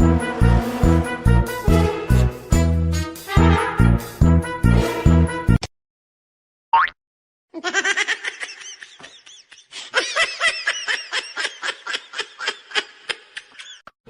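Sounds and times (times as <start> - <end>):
high-pitched laughter: 7.6 - 13.8.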